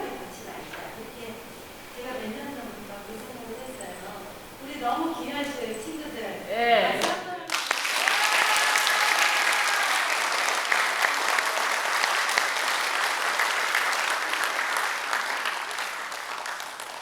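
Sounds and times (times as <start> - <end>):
audience applauding: 7.5 - 17.0.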